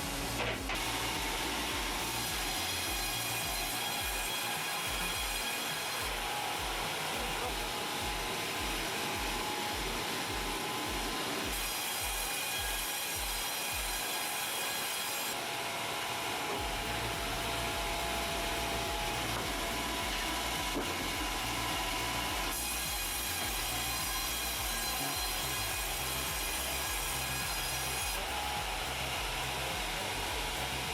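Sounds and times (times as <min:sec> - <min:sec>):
low pulsing: 0:00.0 - 0:03.7, 0:16.6 - 0:30.9
power saw cutting wood: 0:00.0 - 0:30.9.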